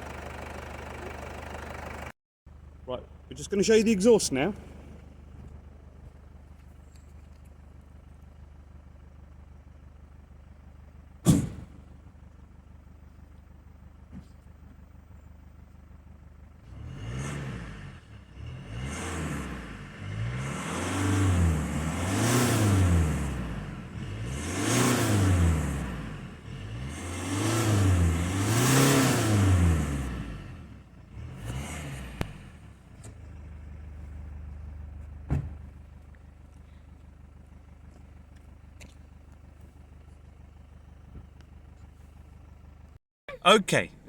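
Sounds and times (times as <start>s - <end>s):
diesel engine idling: 0.0s - 16.6s, 32.2s - 44.0s
sharp knock: 11.3s - 11.7s
engine revving: 16.6s - 33.3s.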